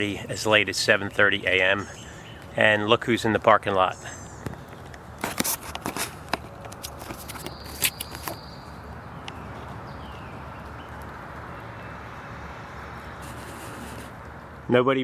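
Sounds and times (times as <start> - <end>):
outdoor background hiss: 0.0 - 15.0
footsteps on ground: 4.4 - 12.0.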